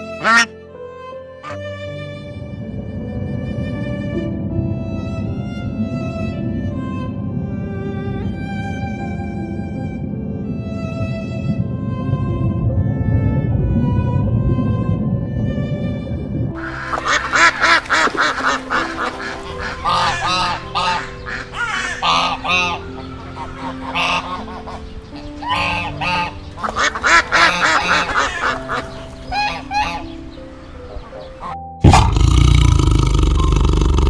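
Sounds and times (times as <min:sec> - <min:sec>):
geese honking: 0:00.0 - 0:00.5, 0:16.6 - 0:31.6
soft background music: 0:00.0 - 0:33.8.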